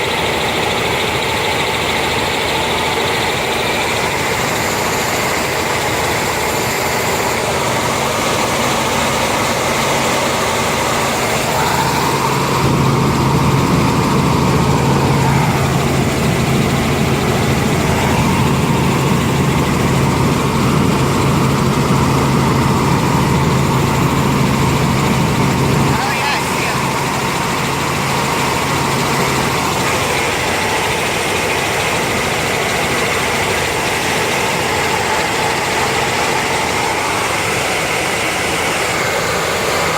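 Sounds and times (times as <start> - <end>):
helicopter engine and rotor drone: 0.0 - 39.9
deep hum: 11.1 - 25.9.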